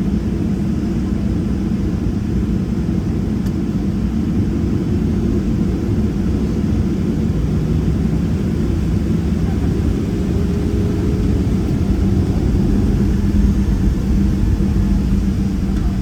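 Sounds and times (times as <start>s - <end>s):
aircraft engines rumbling: 0.0s - 16.0s
faint steady hum: 4.6s - 16.0s.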